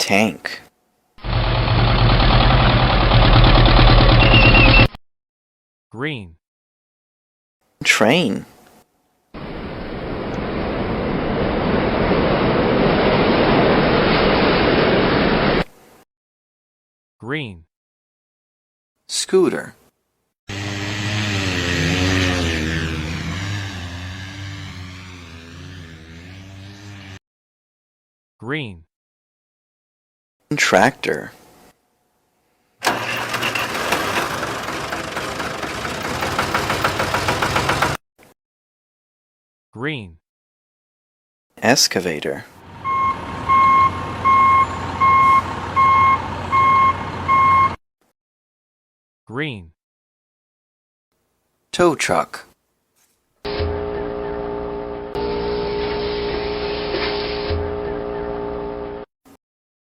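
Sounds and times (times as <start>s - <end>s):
moving train rumble: 1.2s - 4.9s, 32.8s - 38.0s
tractor engine pulsing: 1.2s - 4.9s, 32.8s - 38.0s.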